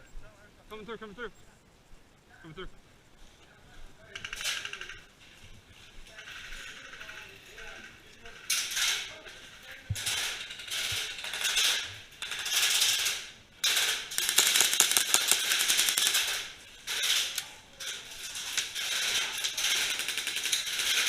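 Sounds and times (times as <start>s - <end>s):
airsoft guns firing in bursts: 10.0s - 21.0s.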